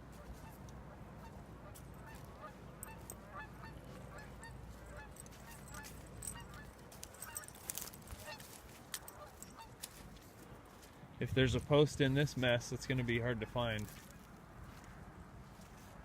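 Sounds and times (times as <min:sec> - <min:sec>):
faint geese honking: 0:00.0 - 0:10.5.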